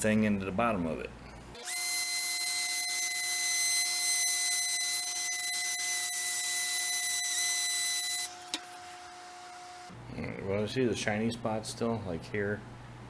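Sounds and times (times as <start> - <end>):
power sander whining: 1.6 - 10.0.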